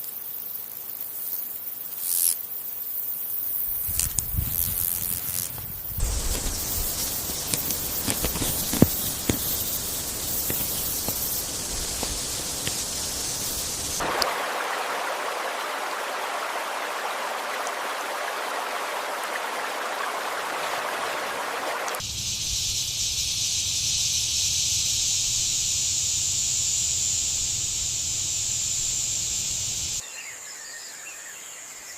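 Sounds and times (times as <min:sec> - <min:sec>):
steady rushing hiss: 0:02.7 - 0:14.6, 0:21.8 - 0:30.0
faint clicks: 0:03.9 - 0:14.0.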